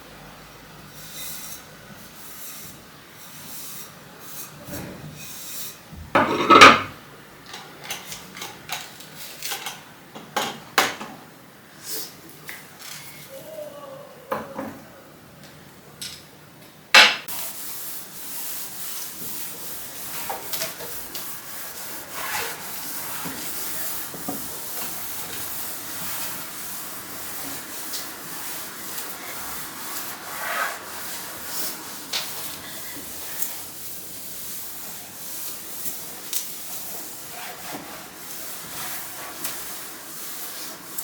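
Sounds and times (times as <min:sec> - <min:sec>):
scrubbing a surface: 0:17.3 - 0:41.0.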